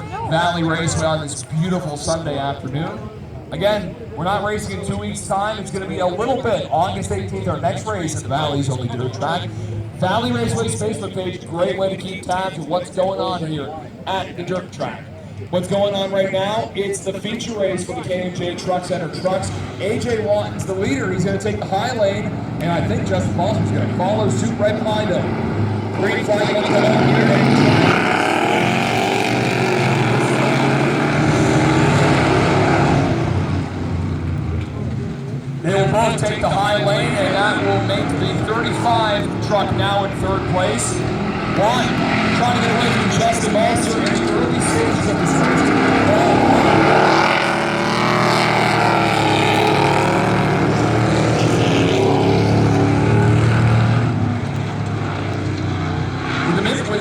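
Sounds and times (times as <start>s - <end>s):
race truck engines revving: 0.0s - 57.0s.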